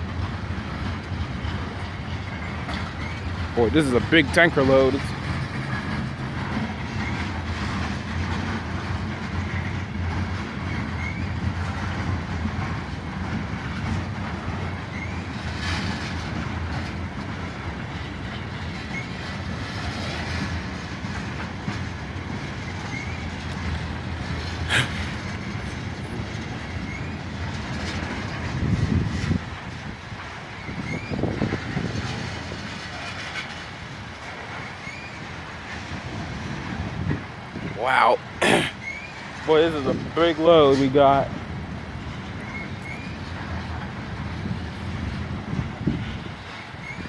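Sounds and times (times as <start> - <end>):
train wheels rumbling and clacking: 0.0 - 47.0
faint wheel squeals: 10.6 - 11.7, 14.8 - 16.2, 24.4 - 27.2, 30.6 - 31.7, 34.5 - 35.3, 38.8 - 39.8, 42.4 - 43.4, 46.0 - 47.0.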